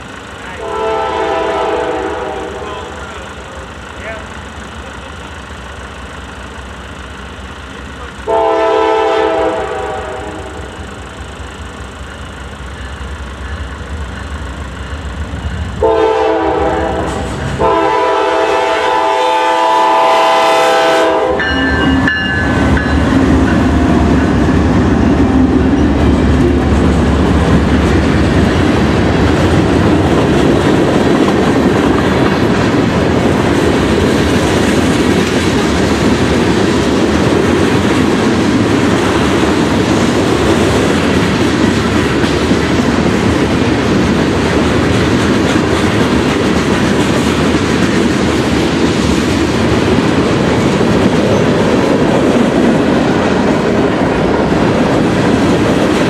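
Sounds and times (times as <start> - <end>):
freight train passing: 0.0 - 56.0
locomotive air horn: 0.6 - 3.0, 8.3 - 10.8, 15.8 - 22.1.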